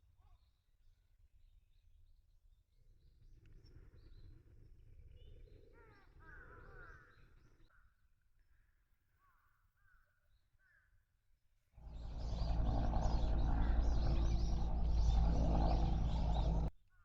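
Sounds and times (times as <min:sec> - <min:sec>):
low rumble: 0:11.8 - 0:16.7
birds calling: 0:11.8 - 0:17.0.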